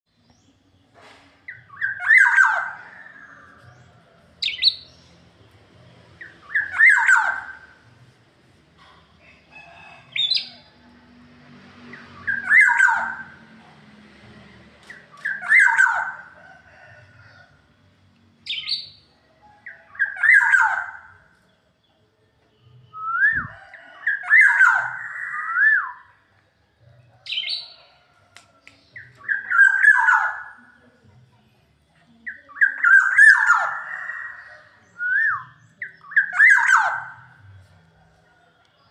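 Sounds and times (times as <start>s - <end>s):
bird whistling song: 1.5s - 3.6s, 4.4s - 5.2s, 6.2s - 7.8s, 11.9s - 13.3s, 14.9s - 16.2s, 18.4s - 19.0s, 19.6s - 21.1s, 22.9s - 26.2s, 29.0s - 30.6s, 32.3s - 33.9s, 34.8s - 37.3s.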